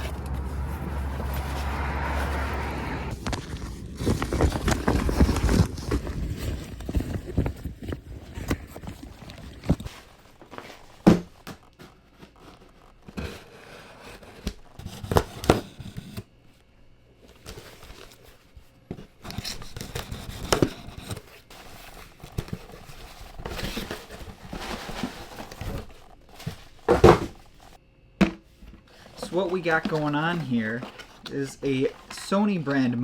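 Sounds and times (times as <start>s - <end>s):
packaging tearing and crinkling: 3.1s - 9.6s.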